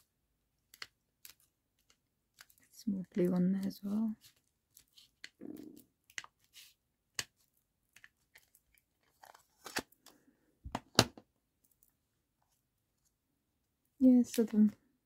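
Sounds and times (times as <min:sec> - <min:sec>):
small clicks and taps: 0:00.7 - 0:02.7
paper rustling: 0:07.4 - 0:10.2.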